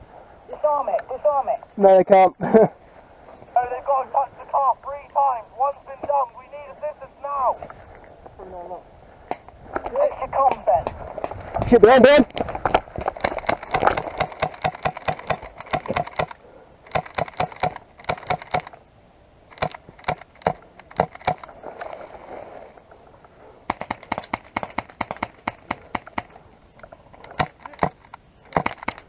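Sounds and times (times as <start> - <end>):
airsoft guns firing bursts: 9.8 - 18.9, 19.5 - 21.9, 23.6 - 29.0.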